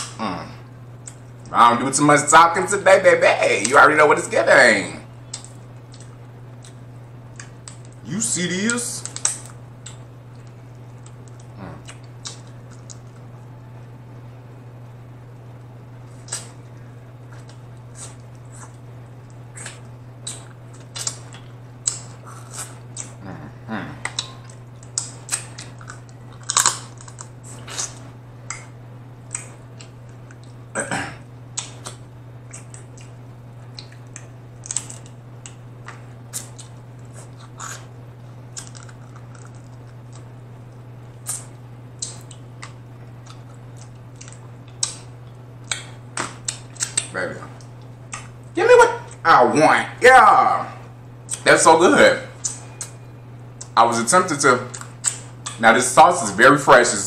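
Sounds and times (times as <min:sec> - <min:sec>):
steady low hum: 0:00.0 - 0:57.0
shrimp shells being peeled: 0:24.1 - 0:28.0
wet chewing smacks: 0:31.5 - 0:37.9, 0:38.5 - 0:49.2, 0:54.7 - 0:55.6.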